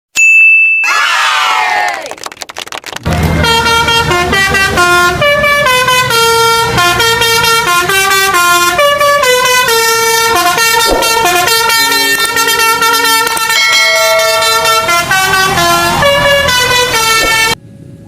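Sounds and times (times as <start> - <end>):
musical air horn tune: 3.2 - 17.6.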